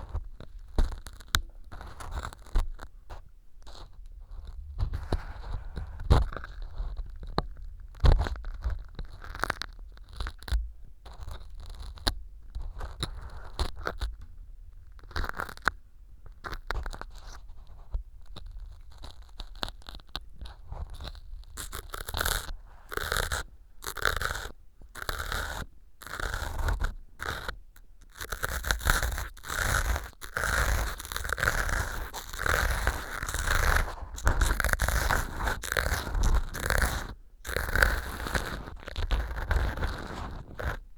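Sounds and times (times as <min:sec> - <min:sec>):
ear pick scraping floral foam: 0:16.5 - 0:40.9.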